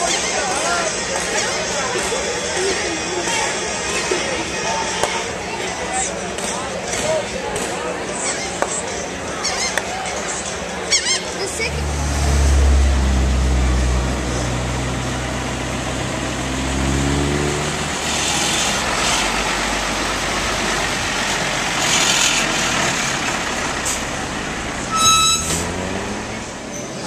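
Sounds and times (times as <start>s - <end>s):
heavy vehicle engine humming: 0.0s - 27.0s
traffic noise: 0.0s - 27.0s
short high-pitched tone: 24.9s - 25.6s.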